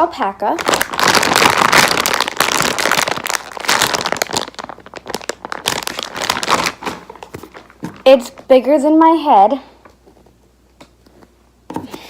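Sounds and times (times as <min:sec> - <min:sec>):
plastic crinkling: 0:00.4 - 0:08.5.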